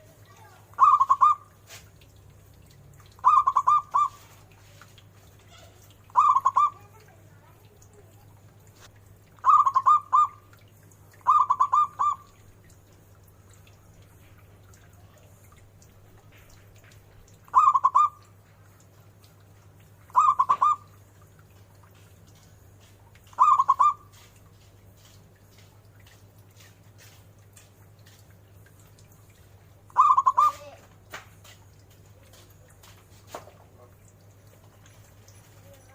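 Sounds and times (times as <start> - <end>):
dove cooing: 0.8 - 1.5, 3.2 - 4.6, 5.5 - 7.1, 9.4 - 10.4, 11.2 - 12.4, 17.5 - 18.2, 20.1 - 20.9, 23.3 - 24.3, 29.9 - 30.8.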